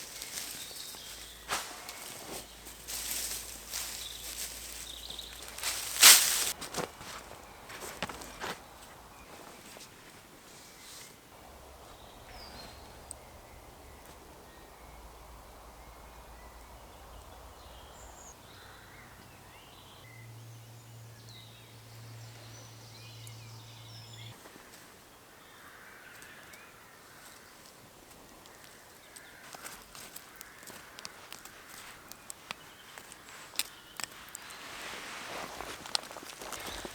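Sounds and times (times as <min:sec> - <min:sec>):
low steady hum: 0:11.3 - 0:24.4.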